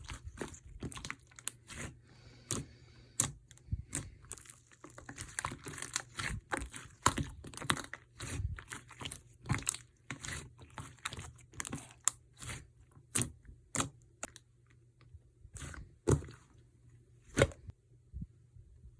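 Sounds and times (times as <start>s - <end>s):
slime popping and crackling: 3.9s - 13.9s.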